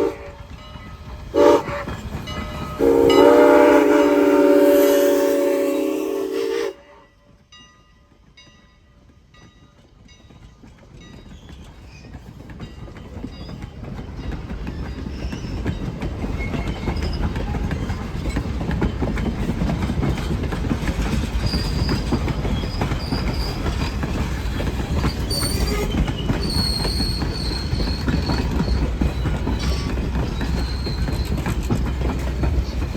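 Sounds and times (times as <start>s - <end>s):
steam whistle: 0.0s - 0.4s, 1.4s - 1.9s, 2.8s - 7.0s
train rumble and rail clatter: 0.0s - 32.9s
high wheel squeals: 21.4s - 31.8s.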